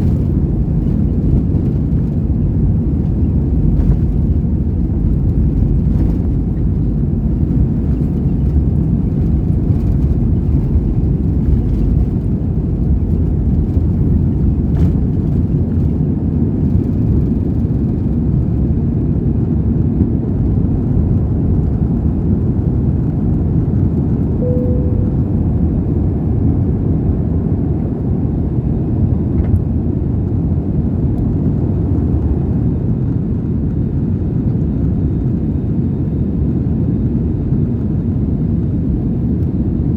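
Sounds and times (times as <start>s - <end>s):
airplane engines rumbling in cabin: 0.0s - 39.9s
faint short tone: 24.4s - 25.8s.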